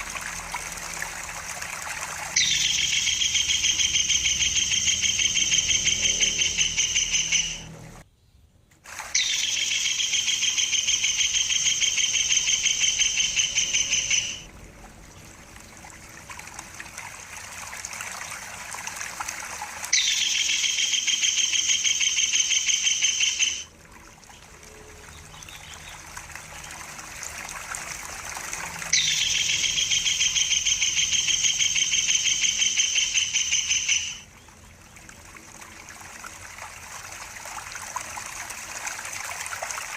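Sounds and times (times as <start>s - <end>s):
stream trickling: 0.0s - 8.1s, 8.8s - 39.9s
bird trilling call: 2.3s - 7.7s, 9.1s - 14.5s, 19.9s - 23.7s, 28.9s - 34.3s.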